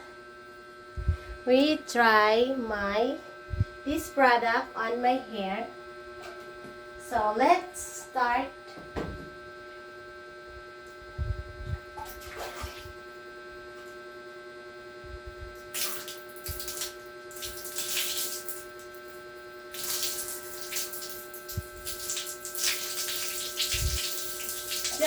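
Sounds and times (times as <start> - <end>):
steady electrical hum: 0.0 - 25.0
water running and splashing: 15.8 - 19.0, 19.7 - 25.0.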